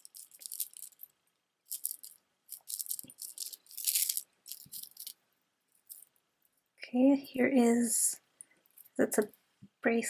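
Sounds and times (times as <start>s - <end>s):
beads clicking and rattling: 0.0s - 6.6s, 8.6s - 9.4s.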